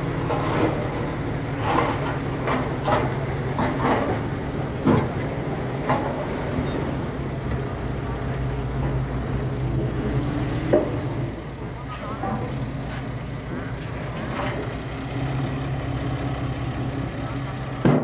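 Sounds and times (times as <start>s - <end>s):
steel tracks clanking and squealing: 0.0s - 7.0s, 10.8s - 14.8s
bulldozer diesel engine running: 0.0s - 18.0s.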